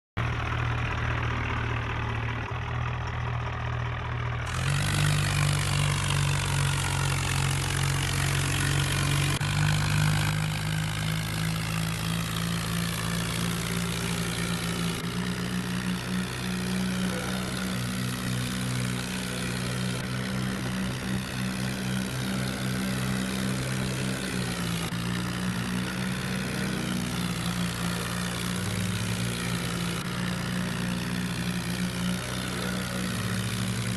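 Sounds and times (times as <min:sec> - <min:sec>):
tractor diesel engine running: 0:00.2 - 0:33.9.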